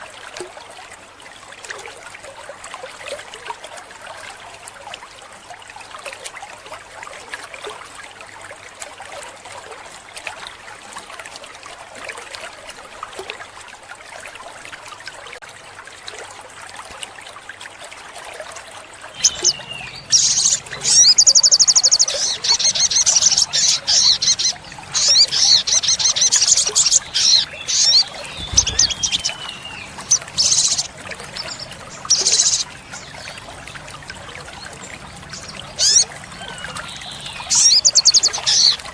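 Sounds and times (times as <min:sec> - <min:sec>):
trickling water: 0:00.0 - 0:38.9
bird trilling and chirping: 0:19.2 - 0:33.2, 0:35.4 - 0:38.8.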